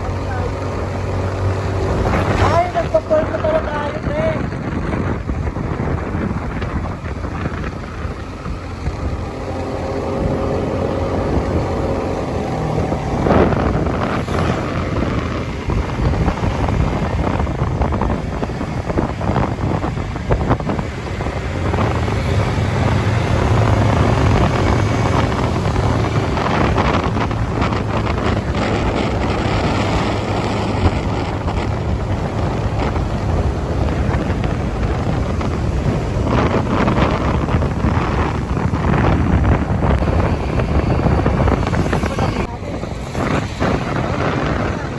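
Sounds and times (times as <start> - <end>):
motorcycle engine hum: 0.0 - 44.9
wind buffeting microphone: 0.0 - 44.9.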